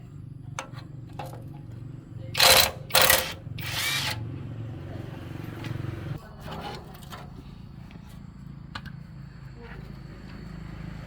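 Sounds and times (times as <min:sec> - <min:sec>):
motor humming: 0:02.4 - 0:04.2.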